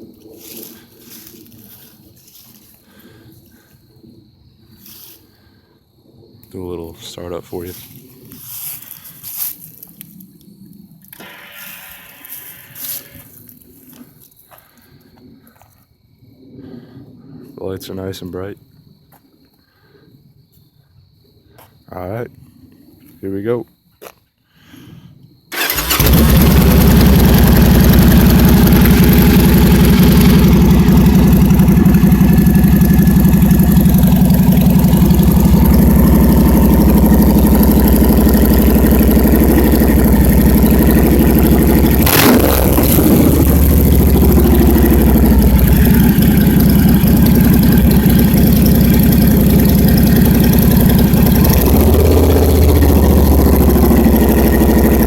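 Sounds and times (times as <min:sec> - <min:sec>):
sharp exhaust crack: 0:25.5 - 0:55.0
motorcycle engine idling loudly: 0:25.6 - 0:55.0.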